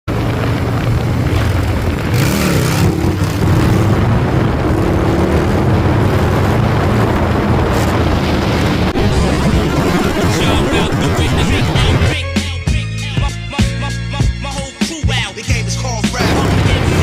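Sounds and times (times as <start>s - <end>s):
motorcycle engines revving: 0.1s - 12.1s, 16.2s - 17.0s.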